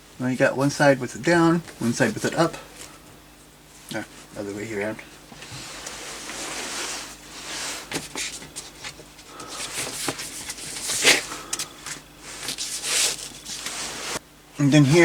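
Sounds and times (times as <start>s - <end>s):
paper rustling: 5.5s - 14.2s.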